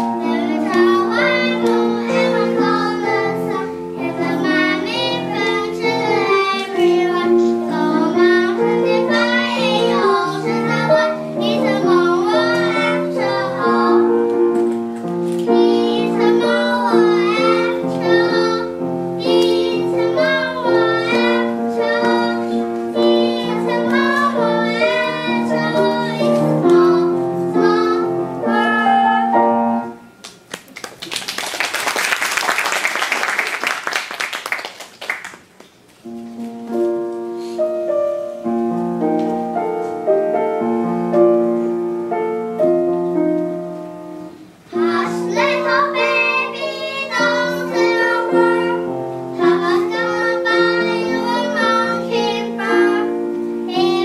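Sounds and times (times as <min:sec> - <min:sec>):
children singing in unison: 0:00.0 - 0:14.4, 0:15.5 - 0:29.1, 0:44.7 - 0:54.0
piano accompaniment: 0:00.0 - 0:31.0, 0:31.7 - 0:54.0
applause: 0:30.2 - 0:35.7.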